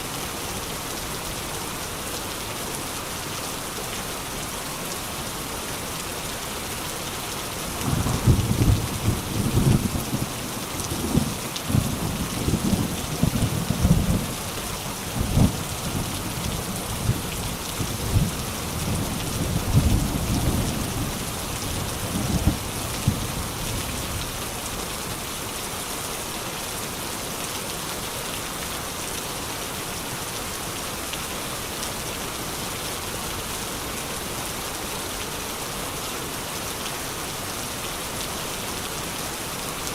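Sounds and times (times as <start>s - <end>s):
steady rain falling: 0.0s - 39.9s
rolling thunder: 7.7s - 10.4s.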